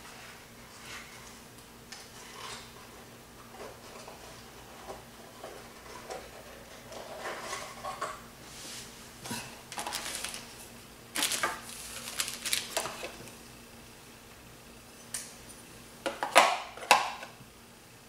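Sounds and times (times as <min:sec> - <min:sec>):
small clatters and knocks: 0:00.8 - 0:08.2
packaging rustling: 0:09.7 - 0:13.4.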